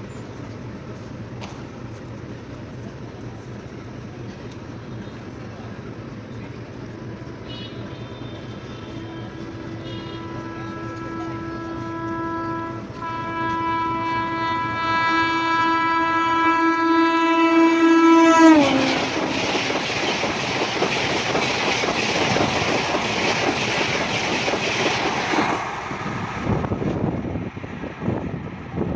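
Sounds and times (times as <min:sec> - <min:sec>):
train wheel clatter and rush: 0:00.0 - 0:28.9
train horn: 0:07.2 - 0:19.8.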